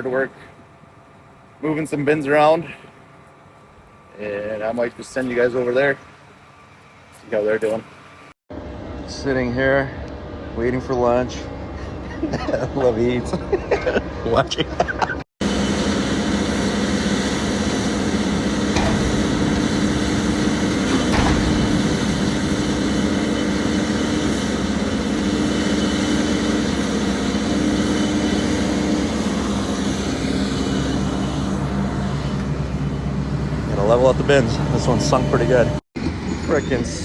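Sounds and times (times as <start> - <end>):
heavy machine engine running: 15.4 - 36.4.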